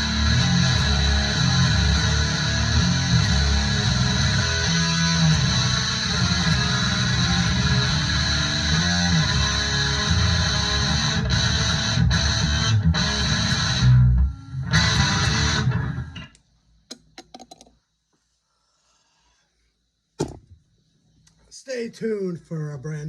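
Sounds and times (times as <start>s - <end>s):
heavy metal music: 0.0s - 16.2s.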